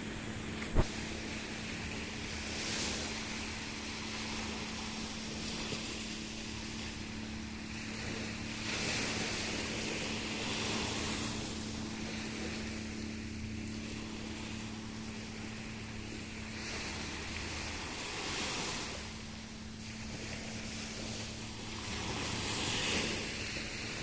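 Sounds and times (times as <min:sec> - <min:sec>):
low motor hum: 0:00.0 - 0:24.0
rushing wind and water: 0:00.0 - 0:24.0.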